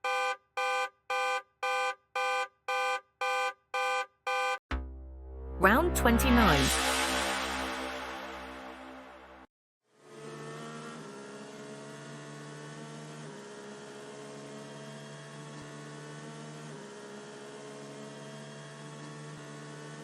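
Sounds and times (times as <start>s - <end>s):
synth drone chords: 4.7s - 9.5s.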